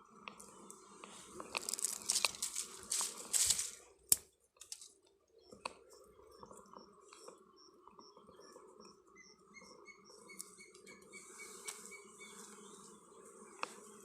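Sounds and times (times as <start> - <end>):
faint bird chirping: 5.1 - 13.1.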